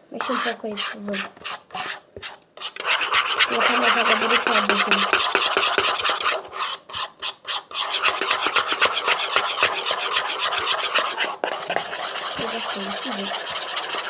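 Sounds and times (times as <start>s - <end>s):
utensil scraping container: 0.2s - 14.0s.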